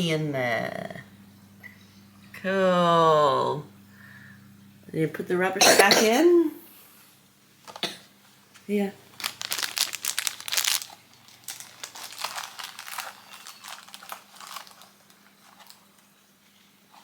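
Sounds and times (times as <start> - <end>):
wrapping crumpled by hand: 9.1 - 17.0.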